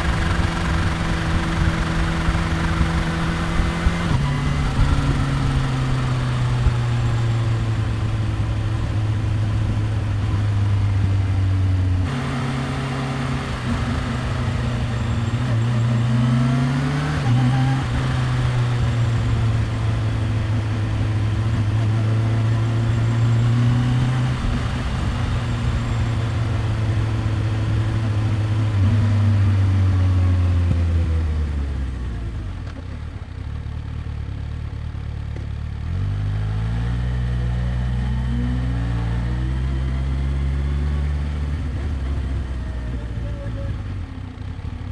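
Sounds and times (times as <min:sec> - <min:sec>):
motorcycle engine revving: 0:00.0 - 0:35.1, 0:35.7 - 0:44.9.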